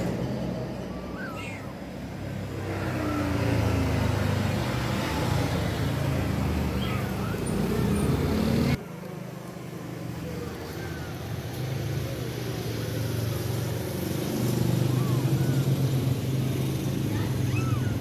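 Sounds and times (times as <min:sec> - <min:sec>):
faint kitten meows: 0:00.8 - 0:01.9, 0:06.6 - 0:08.0, 0:10.4 - 0:11.5, 0:14.5 - 0:16.2, 0:17.0 - 0:18.0.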